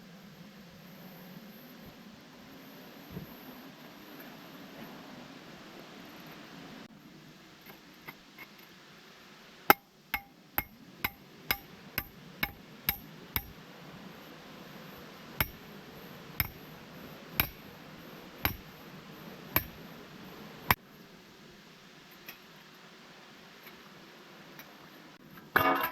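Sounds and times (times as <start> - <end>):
hammer striking metal: 9.7 - 13.6, 15.4 - 15.7, 16.4 - 16.6, 17.4 - 17.7, 18.4 - 18.8, 19.6 - 19.8.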